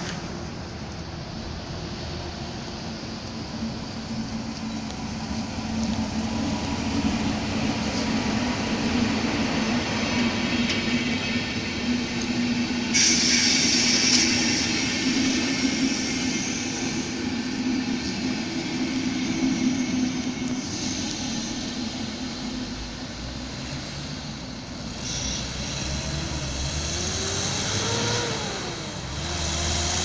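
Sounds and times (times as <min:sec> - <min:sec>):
diesel locomotive drone: 0:00.0 - 0:30.0
train coaches rumbling past: 0:00.0 - 0:30.0
loud sharp hiss: 0:12.0 - 0:30.0.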